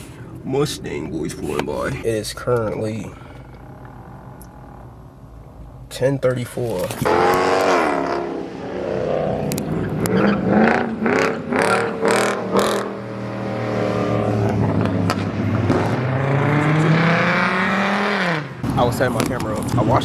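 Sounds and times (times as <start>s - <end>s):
car engines revving: 0.0s - 20.0s.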